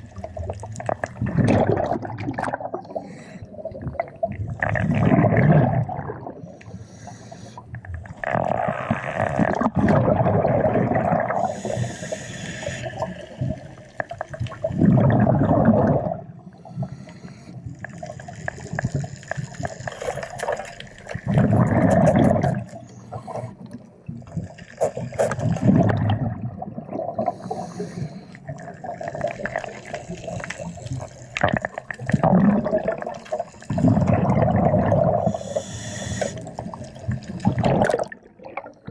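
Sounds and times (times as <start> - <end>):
bubbles rushing: 0.0 - 3.0, 3.6 - 6.5, 8.0 - 11.6, 13.0 - 16.4, 19.9 - 22.8, 24.2 - 27.3, 28.5 - 35.4, 36.5 - 38.9
diver breathing underwater: 2.8 - 3.9, 6.3 - 9.4, 11.2 - 13.8, 16.4 - 20.4, 21.2 - 26.0, 27.1 - 31.8, 33.3 - 37.7
water hiss: 6.4 - 7.6, 11.4 - 13.9, 27.2 - 31.4, 35.2 - 37.2.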